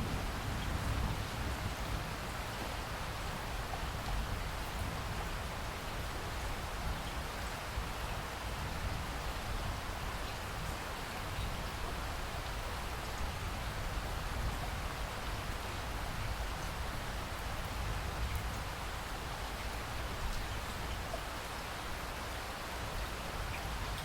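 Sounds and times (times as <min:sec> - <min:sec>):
steady rain hissing: 0:00.0 - 0:24.0.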